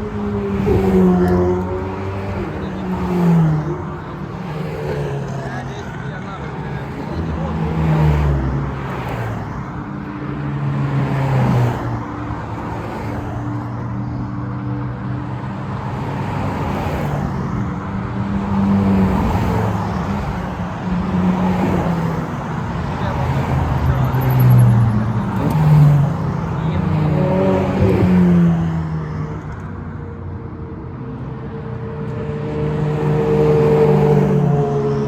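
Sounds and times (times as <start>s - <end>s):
sports cars passing by: 0.0s - 35.0s.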